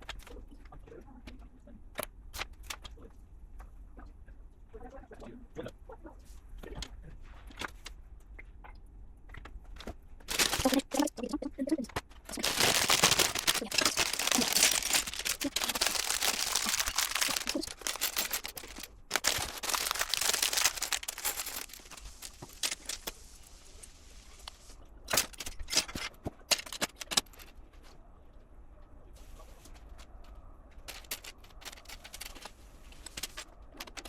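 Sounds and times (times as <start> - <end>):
plastic bricks clattering: 10.3 - 11.1, 12.2 - 23.6, 25.1 - 27.5, 30.8 - 34.0.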